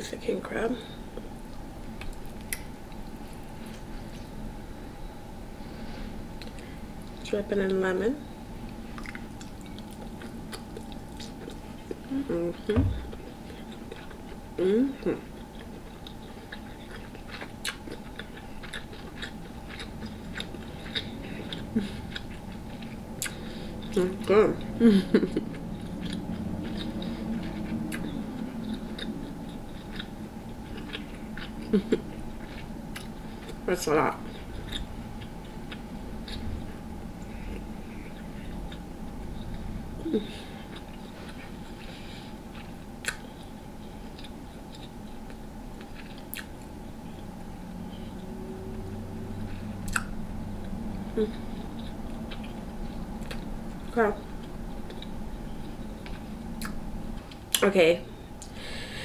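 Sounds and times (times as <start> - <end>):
chewing with mouth clicks and smacks: 1.1 - 4.3, 6.4 - 7.7, 8.6 - 47.3, 47.9 - 57.6.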